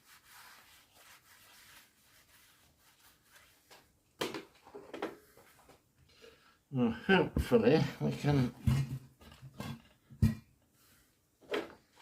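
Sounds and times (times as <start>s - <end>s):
faint rubbing strokes: 0.0s - 3.9s.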